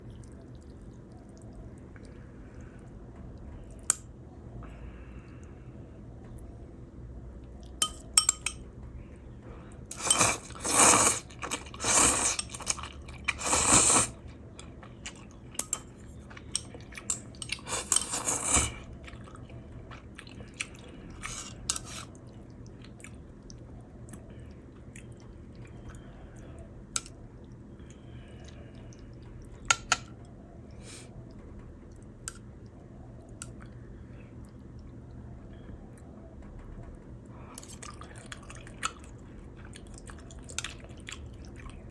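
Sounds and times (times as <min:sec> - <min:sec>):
person chewing and crunching: 0:09.9 - 0:23.5, 0:37.5 - 0:41.9.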